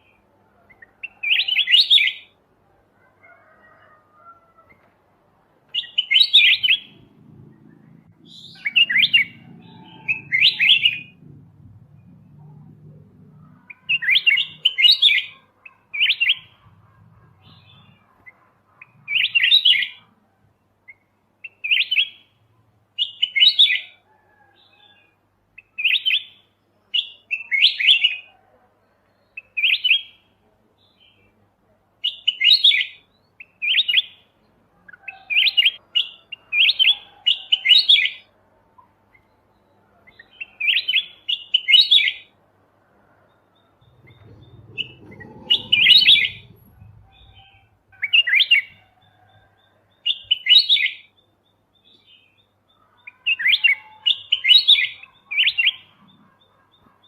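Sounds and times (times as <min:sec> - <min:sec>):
bulbul chirping song: 0:05.7 - 0:07.1, 0:07.7 - 0:11.2, 0:13.4 - 0:20.1, 0:20.9 - 0:24.0, 0:43.3 - 0:48.8, 0:49.6 - 0:57.0
faint low hum: 0:43.0 - 0:48.0.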